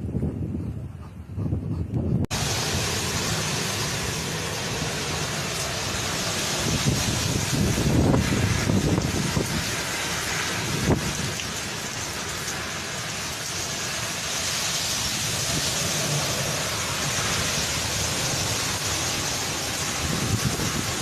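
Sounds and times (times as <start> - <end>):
heavy rain and wind: 0.0 - 21.0.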